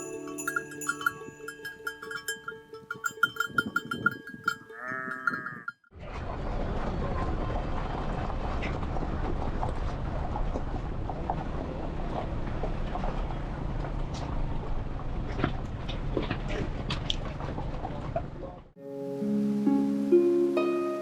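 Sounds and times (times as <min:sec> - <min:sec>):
livestock bells clinking: 0:00.0 - 0:05.9
animal bleat: 0:04.7 - 0:05.7.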